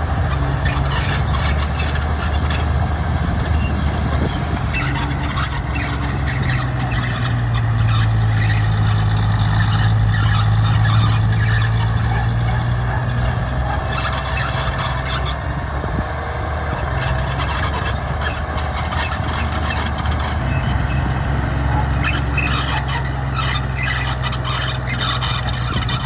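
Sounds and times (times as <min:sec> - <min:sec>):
bulldozer diesel engine running: 0:00.0 - 0:26.0
steel tracks squealing and scraping: 0:00.0 - 0:26.0.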